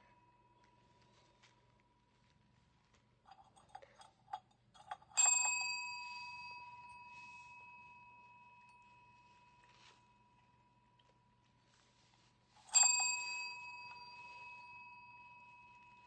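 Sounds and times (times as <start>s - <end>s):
bell ringing: 5.1s - 10.6s, 12.6s - 16.0s.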